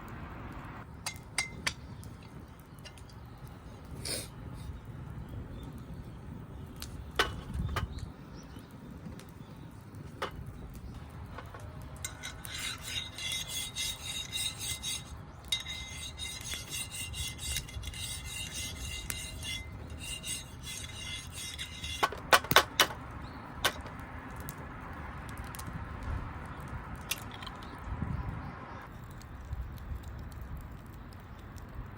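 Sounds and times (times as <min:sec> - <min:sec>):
metal cookware clinking: 0:11.3 - 0:23.0.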